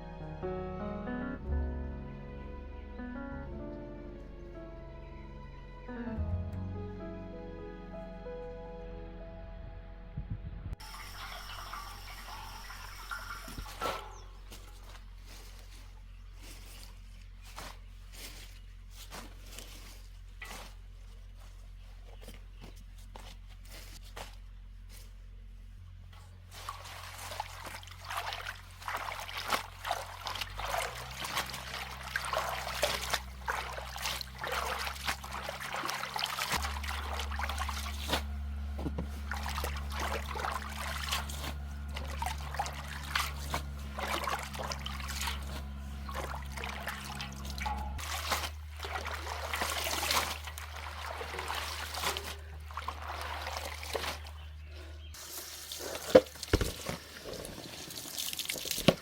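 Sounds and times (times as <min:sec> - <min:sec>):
water trickling and splashing: 0:10.8 - 0:20.8, 0:26.4 - 0:59.0.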